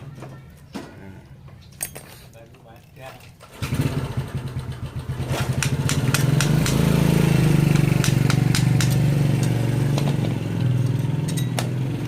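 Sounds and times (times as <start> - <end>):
small engine idling: 3.5 - 12.0
sharp clicks and taps: 5.6 - 6.8, 7.7 - 10.7.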